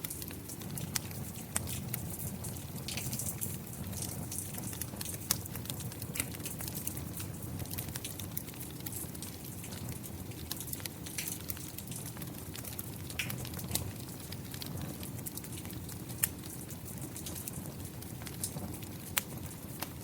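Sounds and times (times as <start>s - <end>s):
rain falling: 0.0s - 19.2s
fire crackling and popping: 0.0s - 20.0s.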